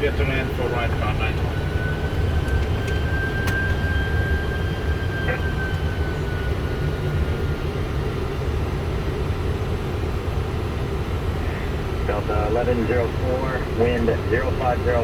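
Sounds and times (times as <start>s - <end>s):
airflow and engines rumble: 0.0s - 15.0s.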